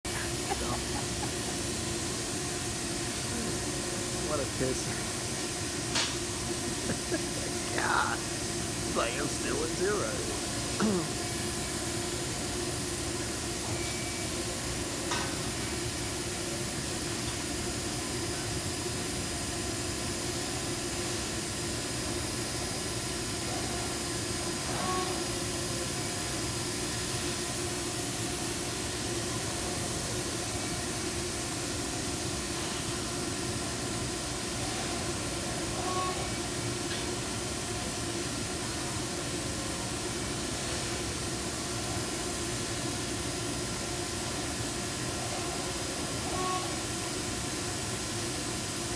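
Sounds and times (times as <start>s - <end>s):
steady machine tones: 0.1s - 12.7s
machine hum and hiss: 0.1s - 48.9s.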